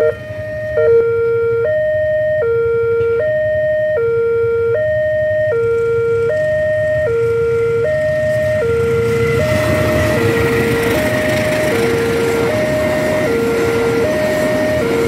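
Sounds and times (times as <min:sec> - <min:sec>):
train arriving: 0:00.0 - 0:01.0, 0:05.7 - 0:15.0
level crossing two-tone alarm: 0:00.0 - 0:15.0.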